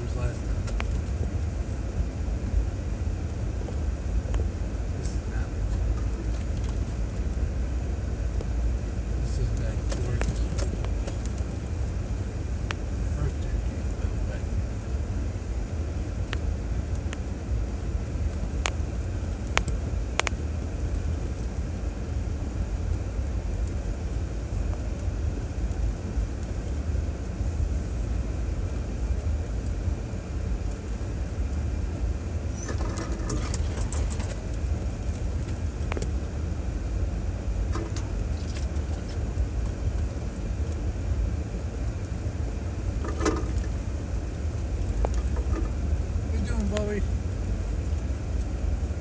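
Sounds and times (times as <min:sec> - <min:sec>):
car driving on dirt trail: 0:00.0 - 0:49.0.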